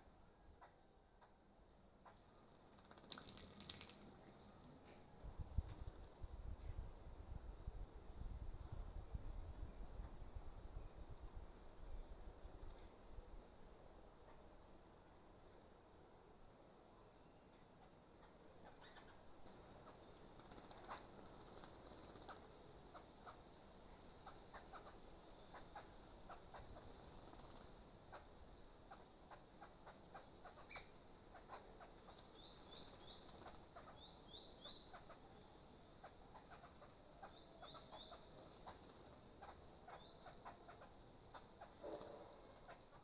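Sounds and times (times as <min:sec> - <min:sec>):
bird wings fluttering: 0:02.1 - 0:04.2, 0:20.3 - 0:22.4, 0:26.7 - 0:27.8
water splashing: 0:02.9 - 0:04.2.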